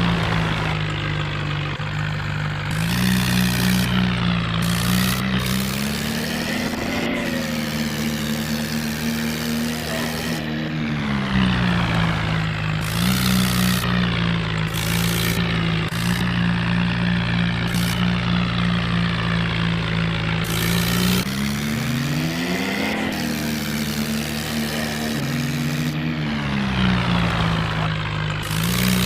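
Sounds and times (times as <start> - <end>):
tractor engine running: 0.0 - 29.0.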